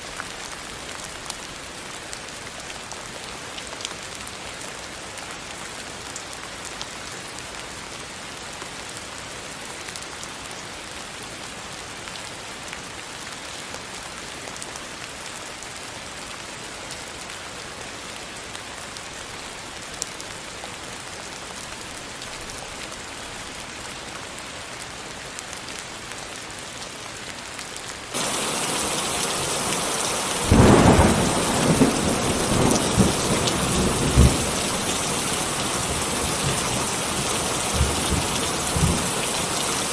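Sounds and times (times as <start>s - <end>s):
rain falling: 0.0s - 39.9s
thunder rumbling: 28.2s - 39.9s.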